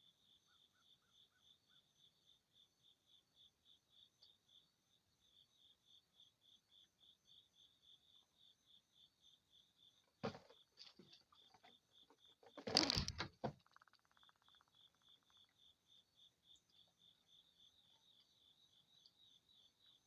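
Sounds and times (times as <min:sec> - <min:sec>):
cricket chirping: 0:00.0 - 0:20.0
knocks and rustling: 0:10.2 - 0:11.7, 0:12.4 - 0:13.8.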